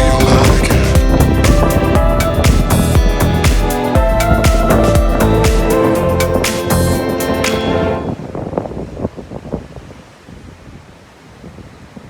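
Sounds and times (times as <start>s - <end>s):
ocean surf rushing: 0.0s - 9.4s
wind buffeting microphone: 0.0s - 12.0s.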